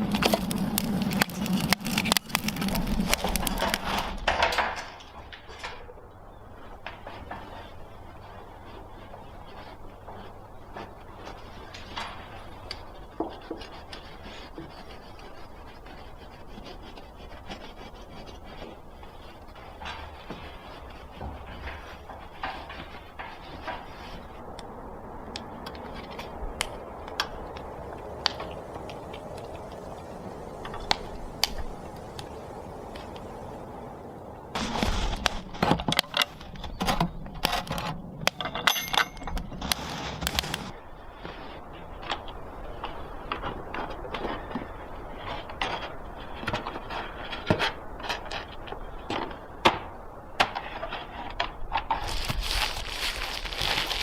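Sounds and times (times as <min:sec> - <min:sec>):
sharp clicks and pops: 0:00.0 - 0:05.8
steady hiss: 0:00.0 - 0:36.5, 0:38.7 - 0:51.1.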